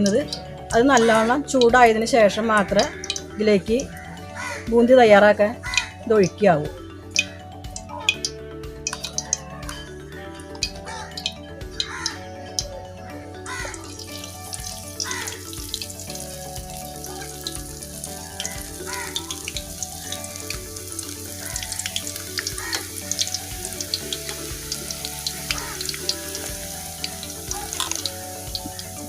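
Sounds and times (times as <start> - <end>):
background music: 0.0 - 29.0
batter frying in hot oil: 2.6 - 3.3, 7.2 - 9.8, 10.6 - 12.7, 13.5 - 29.0.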